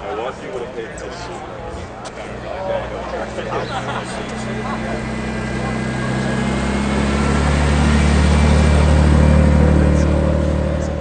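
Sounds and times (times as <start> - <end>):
car engine running: 1.8 - 11.0.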